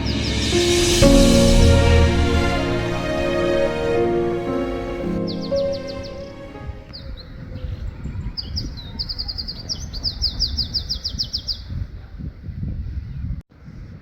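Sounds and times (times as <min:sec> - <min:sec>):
songbird singing: 0:05.2 - 0:11.7.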